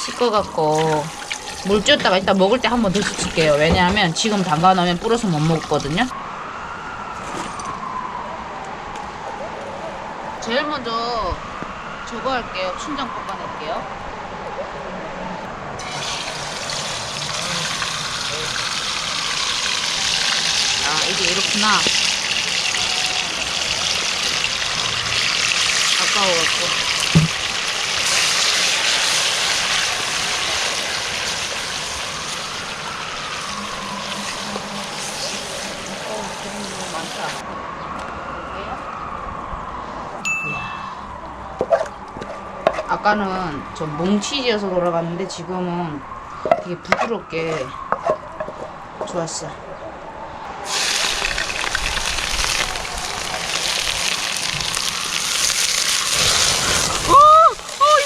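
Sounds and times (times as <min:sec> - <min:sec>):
hot oil sizzling: 0:00.0 - 0:06.1, 0:15.8 - 0:37.4, 0:50.6 - 0:58.0.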